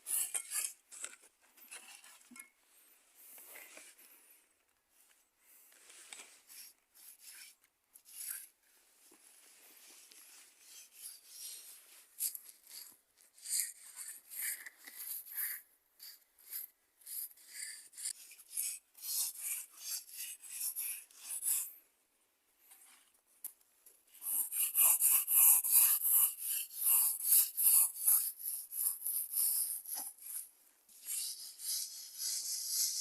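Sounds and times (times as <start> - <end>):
rasping scraping strokes: 0.0 - 1.1.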